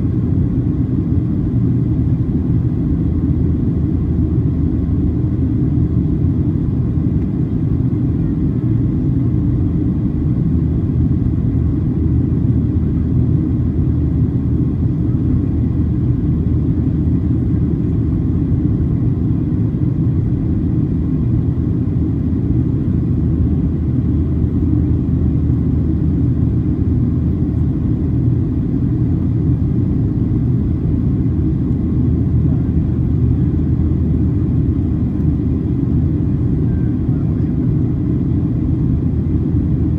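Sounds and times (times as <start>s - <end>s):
airplane cabin rumble: 0.0s - 39.9s
faint steady tone: 35.2s - 38.2s.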